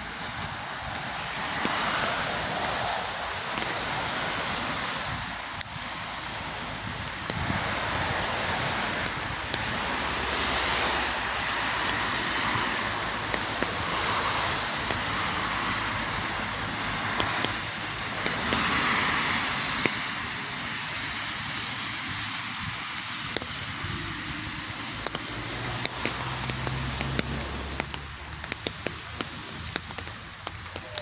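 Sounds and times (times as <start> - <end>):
rain falling: 0.0 - 31.0
sharp ticks: 5.6 - 20.2, 23.2 - 31.0.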